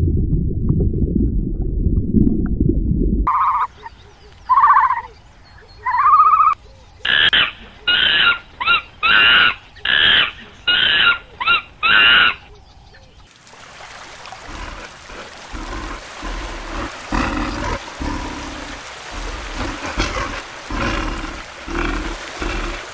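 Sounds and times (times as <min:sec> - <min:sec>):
sloshing water: 0:13.2 - 0:22.9.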